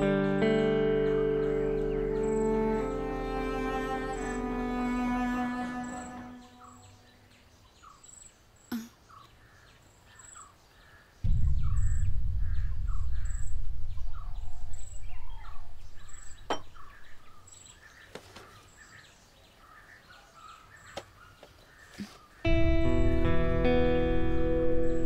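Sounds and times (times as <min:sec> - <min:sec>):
cello music: 0:00.0 - 0:07.0, 0:22.5 - 0:25.0
small birds chirping: 0:00.0 - 0:22.6
low rumble: 0:11.2 - 0:16.5, 0:22.5 - 0:25.0.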